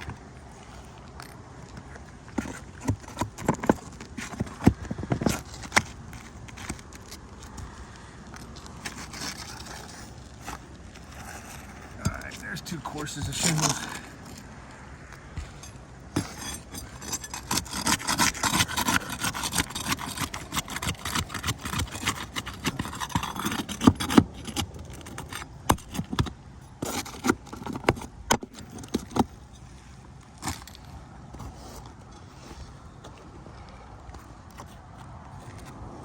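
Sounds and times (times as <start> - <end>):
roof shingles being scraped off: 8.7 - 14.3, 15.4 - 29.3.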